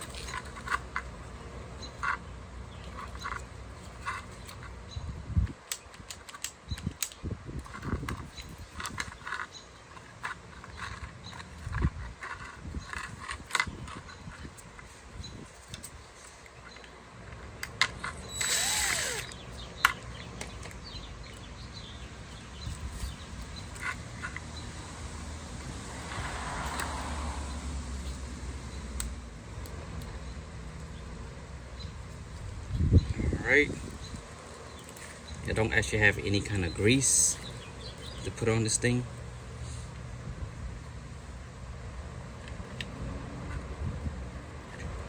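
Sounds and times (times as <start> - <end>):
lock parts rattling: 0.0 - 1.2, 5.5 - 15.0.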